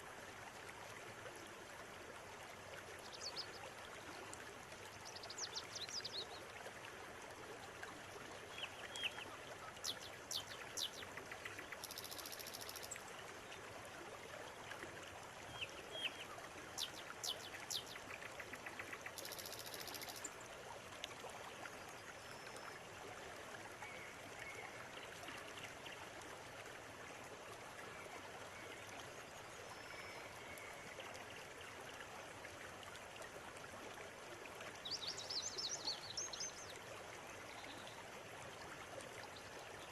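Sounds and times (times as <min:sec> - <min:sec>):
river water running: 0:00.0 - 0:39.9
small birds chirping: 0:09.8 - 0:13.0, 0:16.8 - 0:20.3.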